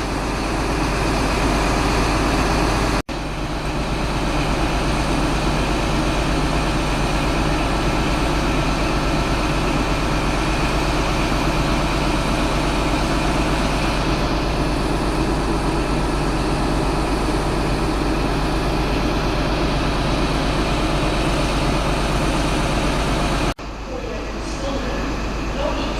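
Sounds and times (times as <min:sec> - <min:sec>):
heavy vehicle engine rumbling: 0:00.0 - 0:25.9.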